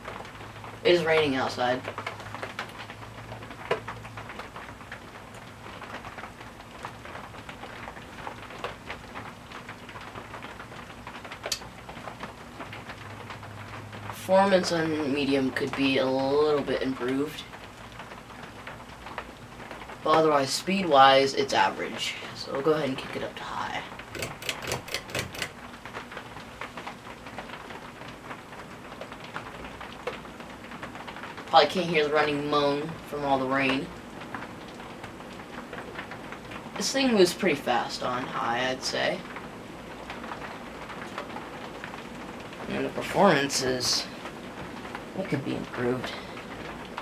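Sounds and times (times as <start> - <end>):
rain tapping: 0.0 - 47.0
ceiling fan moaning: 20.0 - 27.0
sharp ticks: 24.1 - 25.6.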